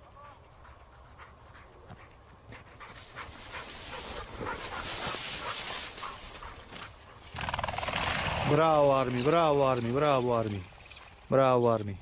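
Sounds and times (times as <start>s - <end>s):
dog panting: 0.4s - 7.3s
crackling rustling noise: 2.9s - 11.3s.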